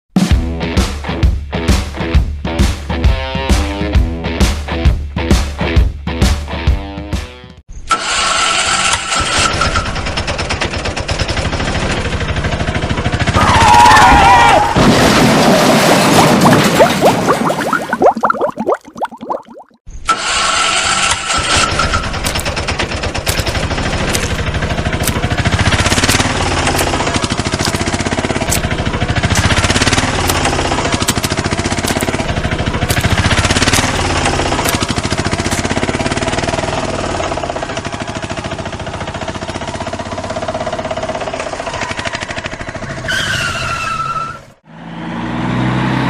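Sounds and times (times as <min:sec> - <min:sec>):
engine chugging: 0:07.9 - 0:14.8, 0:20.1 - 0:44.1.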